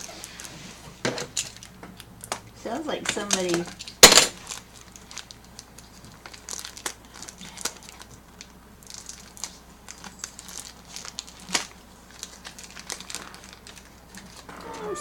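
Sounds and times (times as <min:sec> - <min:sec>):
packaging crinkling and tearing: 0:01.4 - 0:02.3, 0:03.3 - 0:14.4
sharp crackle of packaging: 0:03.3 - 0:15.0.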